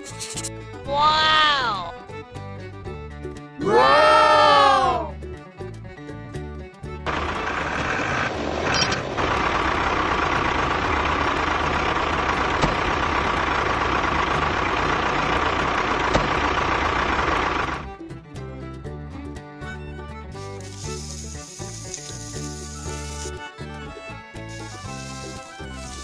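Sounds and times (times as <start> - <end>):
vehicle engine running: 6.9 - 26.0.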